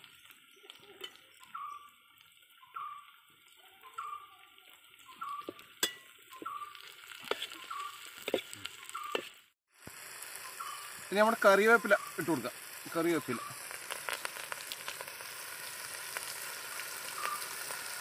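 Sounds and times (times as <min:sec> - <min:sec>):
vegetables sizzling in pot: 0:00.0 - 0:18.0
spatula stirring and scraping: 0:05.2 - 0:09.4
metal clinks on pot: 0:05.3 - 0:09.4.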